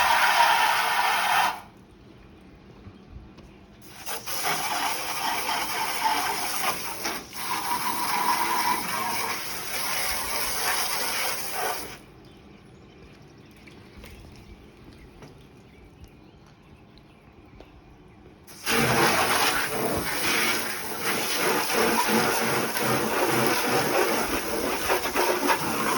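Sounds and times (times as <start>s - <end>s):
water spraying on car: 0.0s - 1.7s, 3.8s - 12.0s, 18.5s - 25.9s.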